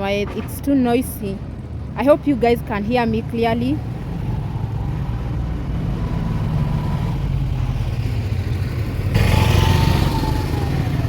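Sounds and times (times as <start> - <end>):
vehicle engines rumbling: 0.0 - 11.0
vehicle passing close: 3.2 - 11.0.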